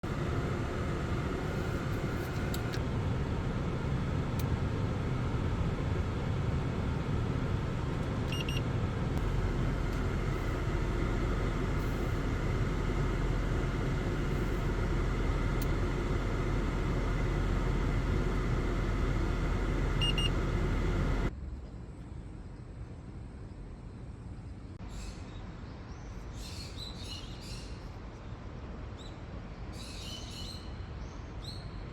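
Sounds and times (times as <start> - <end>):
car interior road noise: 0.0 - 21.3.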